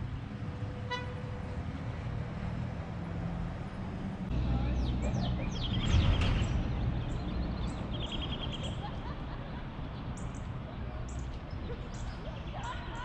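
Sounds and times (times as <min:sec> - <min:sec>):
small birds chirping: 0:04.3 - 0:13.0.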